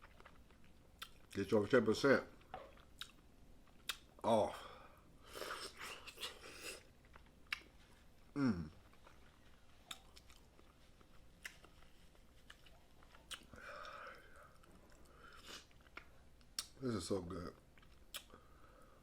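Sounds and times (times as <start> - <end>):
wet chewing and lip-smacking: 0.0 - 1.4, 2.4 - 4.2, 5.3 - 16.8, 17.6 - 18.6
person humming mm: 8.4 - 8.8.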